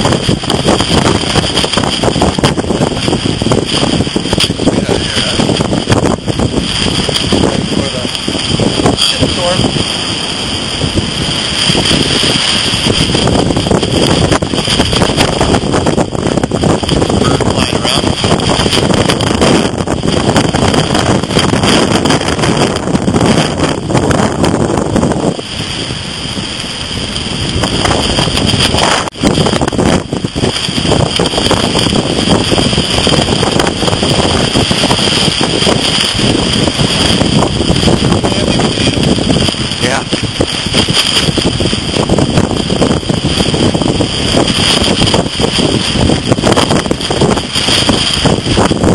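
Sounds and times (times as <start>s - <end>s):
gusty wind buffeting microphone: 0.0s - 48.9s
heavy surf breaking: 0.0s - 48.9s.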